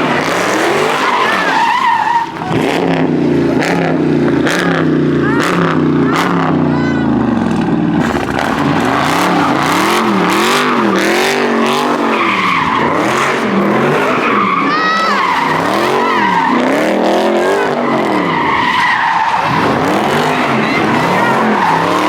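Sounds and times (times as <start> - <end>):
tyres squealing: 0.0 - 2.8, 8.0 - 22.0
car engine revving: 0.0 - 22.0.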